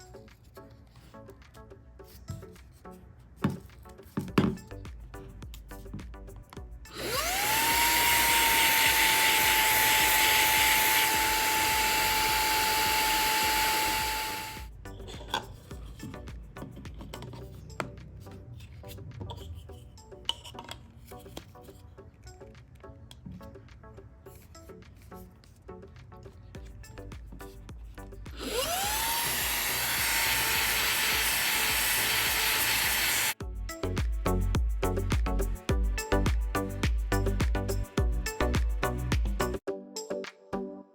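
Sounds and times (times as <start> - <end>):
handheld vacuum motor whining: 6.9 - 14.7, 28.3 - 33.4.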